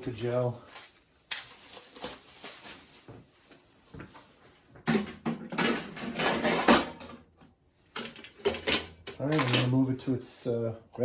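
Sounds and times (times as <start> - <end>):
packaging rustling: 0.0 - 3.7.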